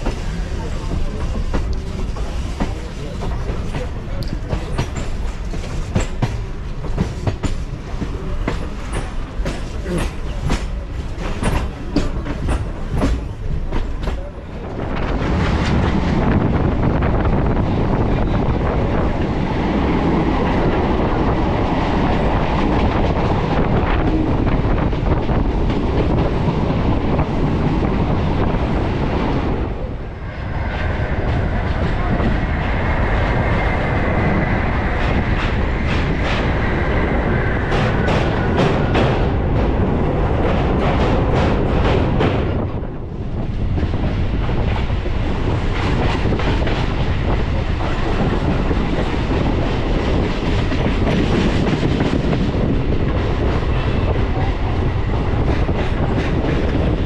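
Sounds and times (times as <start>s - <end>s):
train wheels clacking over rail joints: 0.0s - 16.2s, 34.4s - 57.0s
train rumble: 0.0s - 57.0s.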